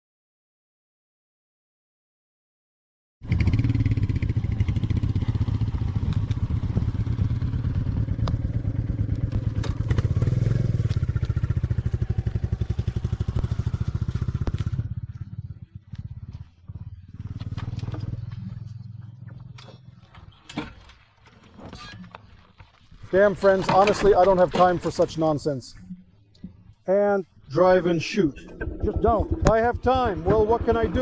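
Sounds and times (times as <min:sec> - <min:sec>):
motorcycle engine thumping: 0:03.3 - 0:21.1, 0:28.5 - 0:31.0.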